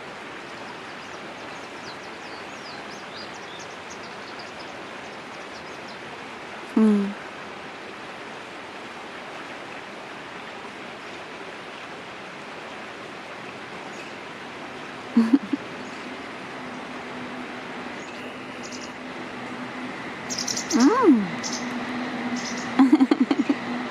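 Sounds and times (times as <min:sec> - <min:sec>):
person humming: 0:06.7 - 0:07.2, 0:15.2 - 0:15.6, 0:20.7 - 0:21.4
steady rushing noise: 0:12.0 - 0:23.9
high bird chirps: 0:20.3 - 0:21.8.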